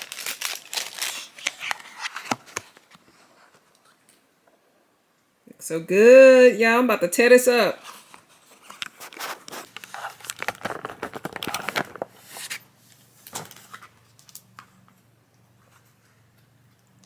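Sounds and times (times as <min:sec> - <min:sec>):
food packaging crinkling: 0:00.0 - 0:04.2, 0:07.8 - 0:14.7.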